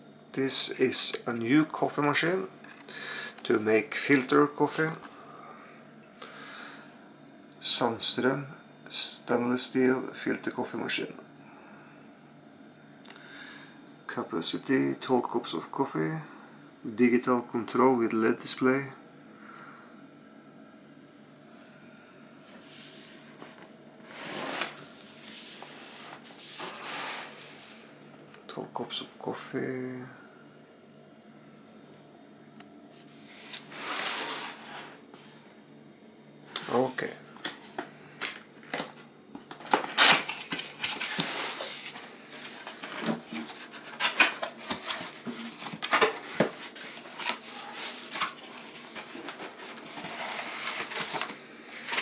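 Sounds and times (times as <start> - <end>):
cardboard box scraping and rustling: 24.1 - 27.8, 33.7 - 35.0, 41.0 - 51.3.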